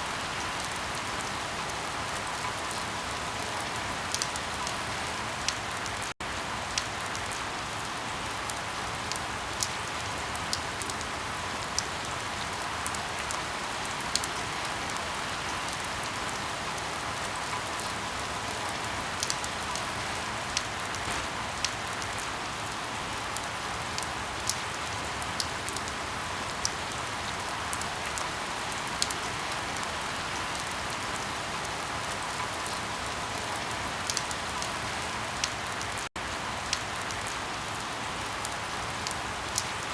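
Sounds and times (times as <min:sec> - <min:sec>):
steady rain: 0:00.0 - 0:39.9
firewood popping and crackling: 0:21.0 - 0:21.9.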